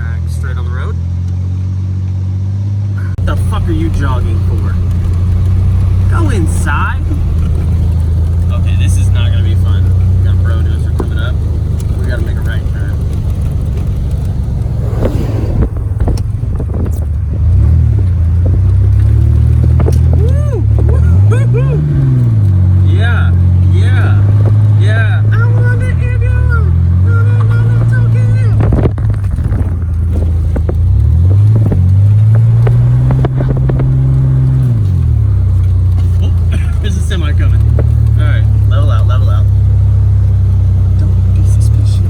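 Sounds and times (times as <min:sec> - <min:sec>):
engine and tyres rumbling: 0:00.0 - 0:42.0
knocks and crunches: 0:03.6 - 0:21.1, 0:28.6 - 0:38.7.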